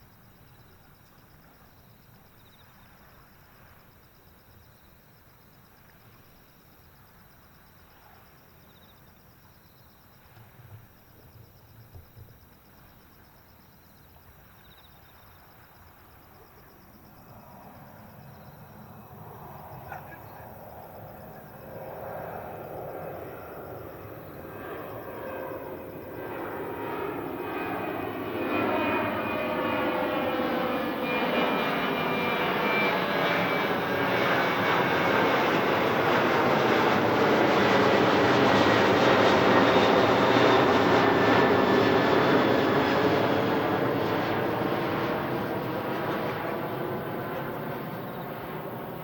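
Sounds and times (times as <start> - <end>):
jet airliner roaring on takeoff: 17.4 - 49.0.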